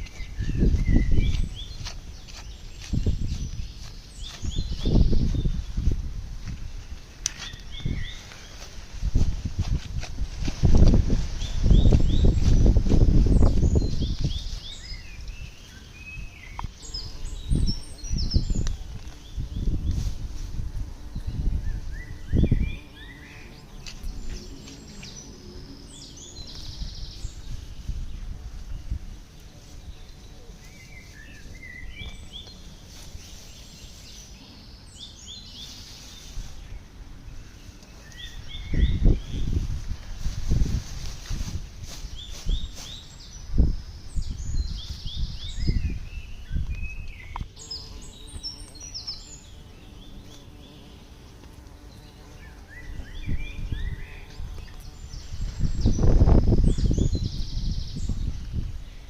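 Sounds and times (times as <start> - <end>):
small songbirds chirping: 0.0 - 59.0
low rustling thuds: 8.7 - 14.5.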